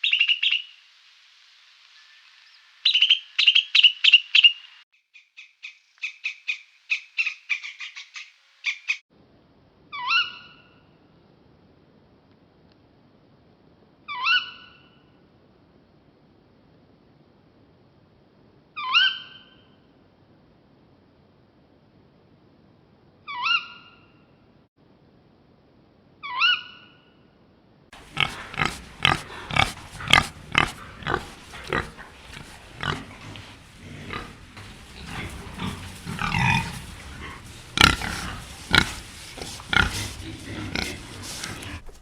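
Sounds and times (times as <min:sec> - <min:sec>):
animal short rough calls: 0:28.0 - 0:42.0.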